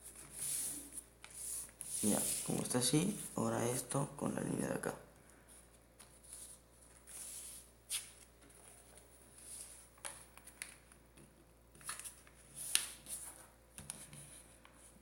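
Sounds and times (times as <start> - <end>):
paper being folded: 0.0 - 3.4, 11.8 - 13.5.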